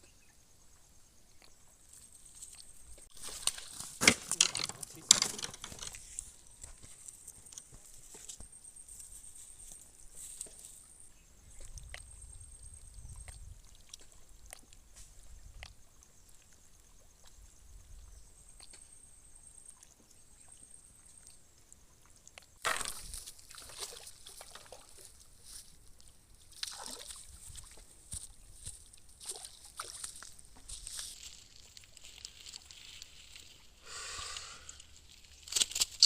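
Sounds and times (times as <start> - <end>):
water splashing and sloshing: 22.0 - 33.8.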